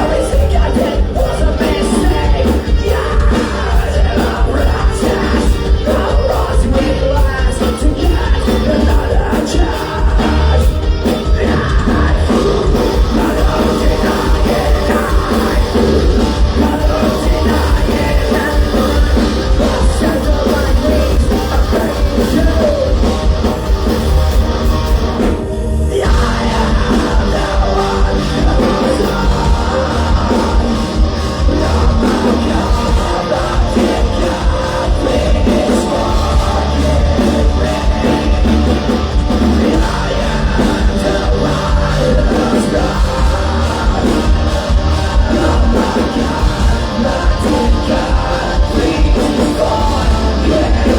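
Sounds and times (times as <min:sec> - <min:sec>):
person singing: 0:00.0 - 0:24.2, 0:25.2 - 0:50.9
live rock band playing: 0:00.0 - 0:50.9.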